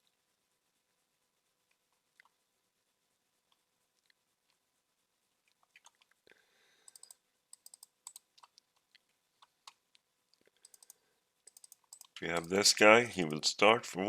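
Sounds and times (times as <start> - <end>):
mouse and keyboard clicks: 6.8 - 9.8, 10.6 - 13.4.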